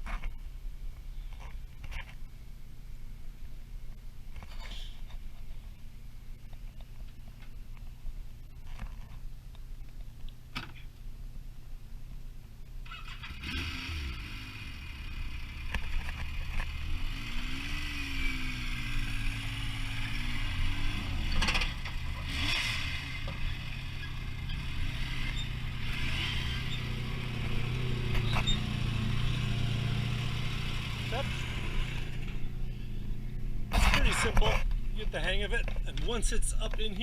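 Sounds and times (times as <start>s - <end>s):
scrapes and clunks of vehicle: 0.0s - 2.3s, 4.3s - 11.1s, 15.6s - 16.8s, 20.8s - 29.5s, 31.9s - 37.0s
engine running at low revs: 11.3s - 36.8s.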